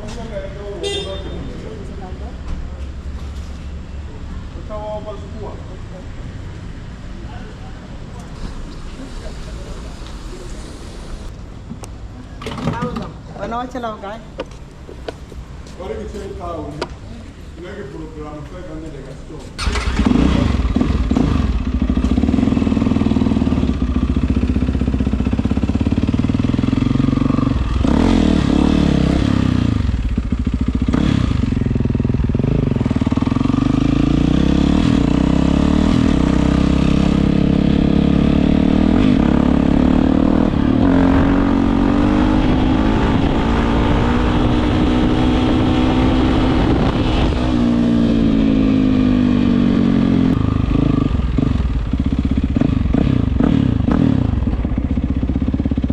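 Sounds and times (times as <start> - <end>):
motorcycle engine revving: 19.6 - 55.9.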